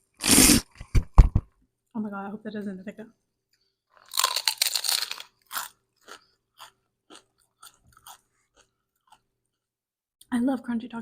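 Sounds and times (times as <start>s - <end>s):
crunchy chewing: 3.9s - 9.7s
crunchy taco bite: 4.0s - 9.3s.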